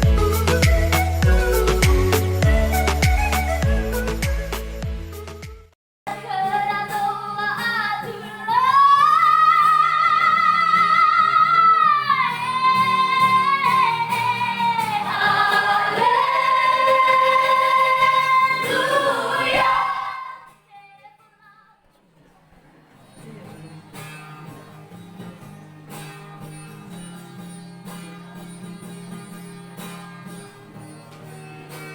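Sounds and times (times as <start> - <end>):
soft lower vocal parts: 6.4 - 20.5.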